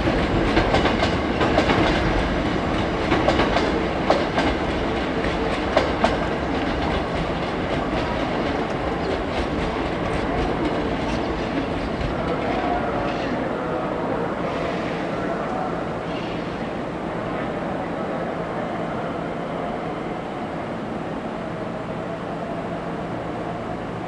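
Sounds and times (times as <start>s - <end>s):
train wheels clacking over rail joints: 0.0s - 12.6s
train rumble: 0.0s - 24.0s.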